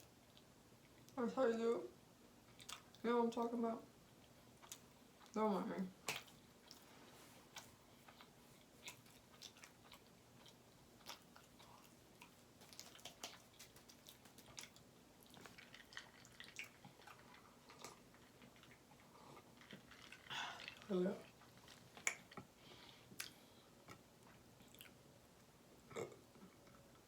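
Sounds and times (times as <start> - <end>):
person chewing food: 2.5 - 3.0, 4.1 - 5.4, 6.0 - 25.0.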